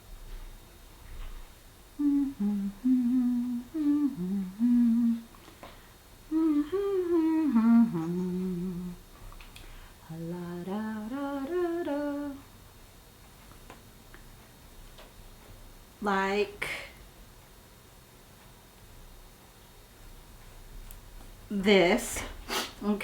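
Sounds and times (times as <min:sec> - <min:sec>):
woman humming: 0:02.0 - 0:05.3, 0:06.3 - 0:09.0, 0:10.0 - 0:12.4.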